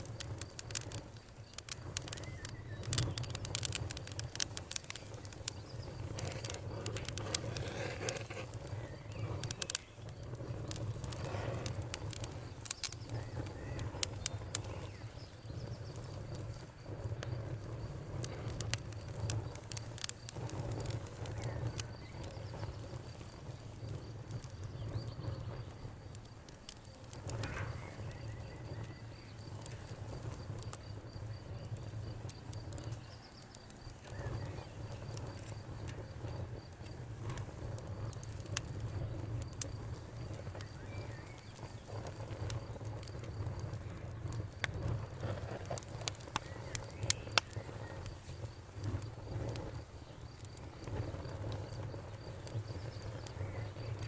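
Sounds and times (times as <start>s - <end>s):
cricket trilling: 0.0s - 54.0s
wood fire crackling and popping: 0.0s - 54.0s.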